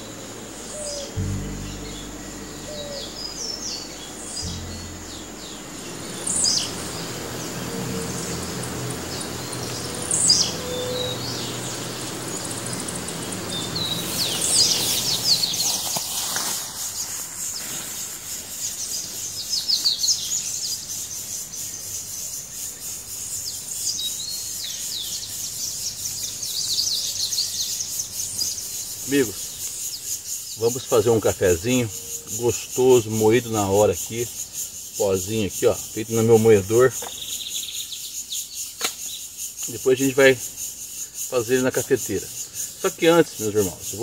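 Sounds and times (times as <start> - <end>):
low steady hum: 0.0 - 15.6
birds chirping and whistling: 0.7 - 15.9.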